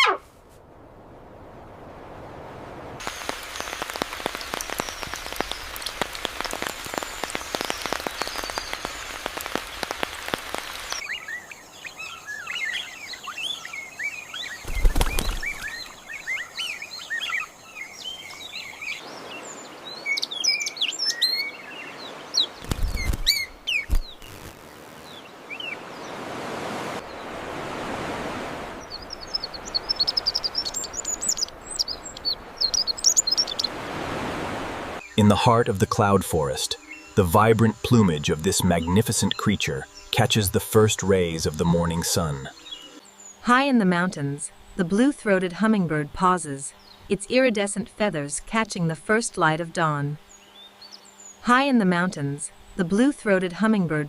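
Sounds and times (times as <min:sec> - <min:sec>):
small birds chirping: 0:03.0 - 0:26.2, 0:28.8 - 0:33.8, 0:35.0 - 0:43.4, 0:50.2 - 0:51.4.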